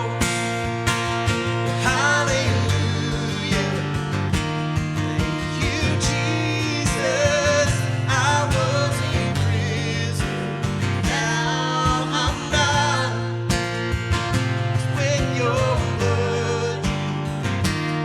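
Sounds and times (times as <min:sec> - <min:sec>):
guitar chords: 0:00.0 - 0:18.0
person singing: 0:01.8 - 0:04.1, 0:05.3 - 0:13.2.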